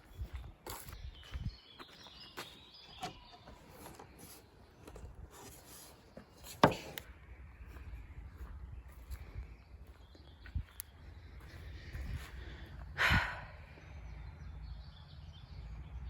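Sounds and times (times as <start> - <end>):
footsteps on forest path: 0.0 - 13.8.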